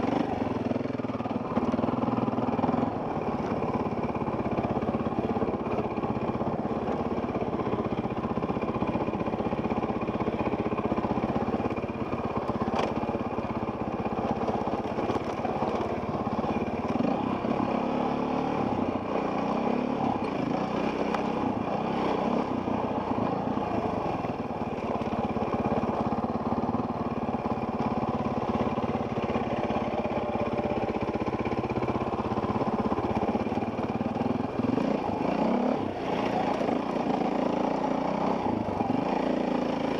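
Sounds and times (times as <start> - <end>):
dirt bike engine: 0.0 - 39.9.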